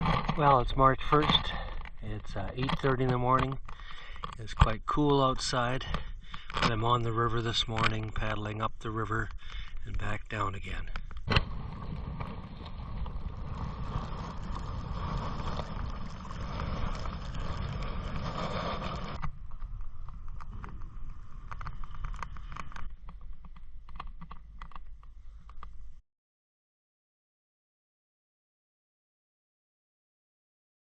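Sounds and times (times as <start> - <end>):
low rumble: 7.0 - 23.9.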